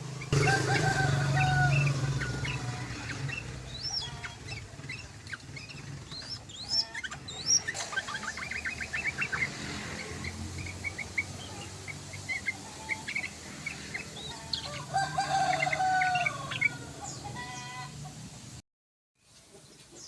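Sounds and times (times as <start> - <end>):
bird chirping: 0.0 - 17.8
rooster crowing: 0.3 - 4.6, 14.2 - 17.9.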